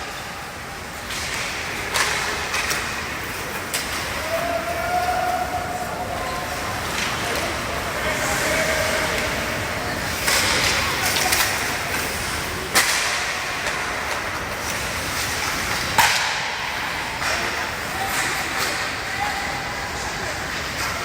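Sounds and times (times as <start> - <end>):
stick or puck striking: 15.8 - 18.8.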